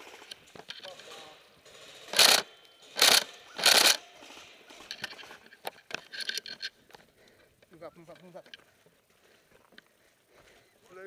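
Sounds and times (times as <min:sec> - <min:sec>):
airsoft rifle bursts: 0:00.0 - 0:05.4
sharp clicks: 0:02.1 - 0:04.0.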